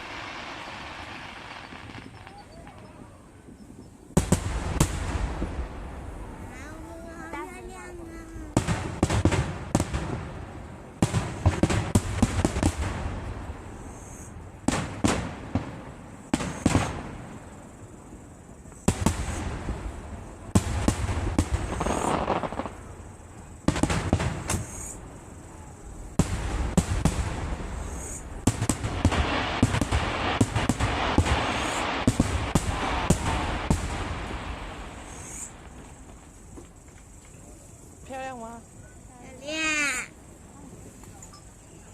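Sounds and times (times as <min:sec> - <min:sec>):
firework shells bursting: 0:00.0 - 0:03.0, 0:20.6 - 0:25.0, 0:25.9 - 0:37.5
fireworks crackle: 0:00.0 - 0:38.6.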